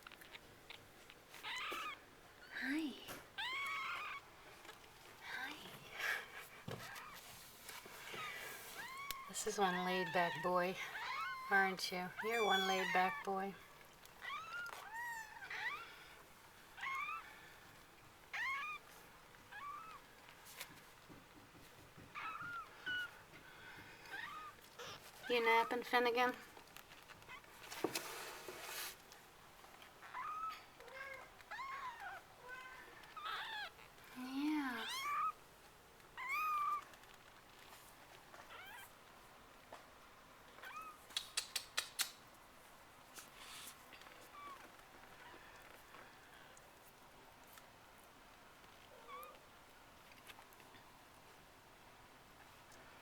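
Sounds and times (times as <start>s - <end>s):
sharp clicks: 41.1s - 42.2s.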